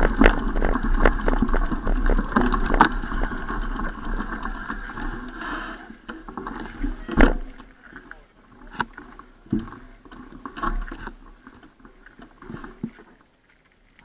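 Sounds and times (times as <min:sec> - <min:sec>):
bicycle rattling clicks and knocks: 0:00.0 - 0:04.4
wind rumbling on microphone: 0:00.0 - 0:07.7.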